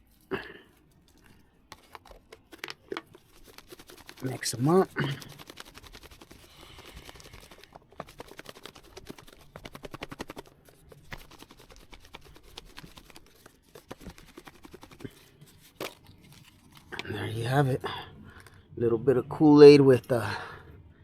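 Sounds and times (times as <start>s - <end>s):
raw chicken squishing and clicking: 0.9s - 17.1s.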